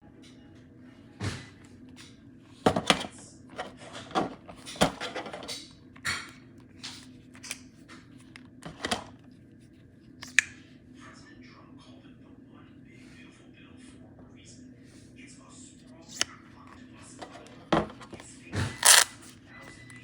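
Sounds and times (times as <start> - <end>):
hand tools clicking and snapping: 18.8 - 19.1.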